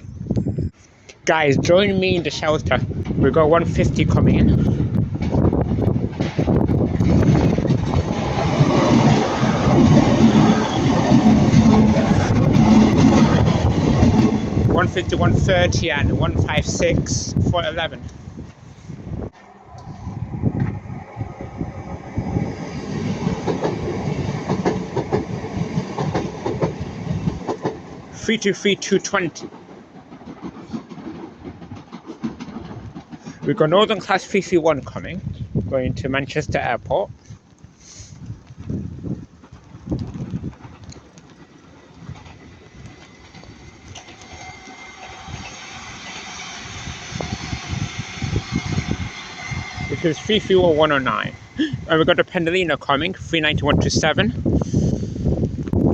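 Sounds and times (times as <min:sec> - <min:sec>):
train wheels clattering over rails: 0:04.2 - 0:17.1, 0:22.2 - 0:34.4, 0:39.3 - 0:52.1.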